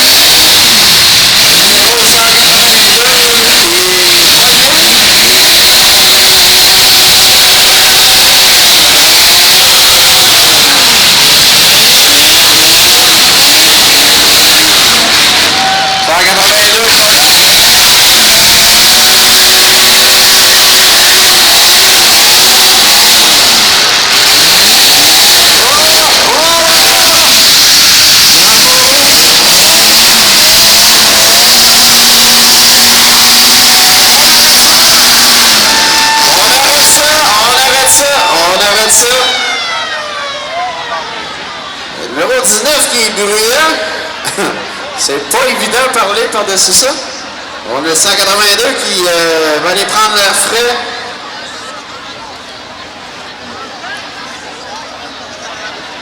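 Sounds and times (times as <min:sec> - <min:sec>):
car engines revving: 0:00.0 - 0:39.1.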